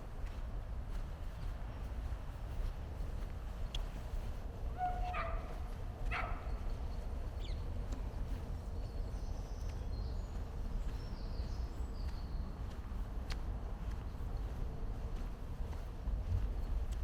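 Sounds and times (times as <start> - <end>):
dog barking: 4.8 - 6.6.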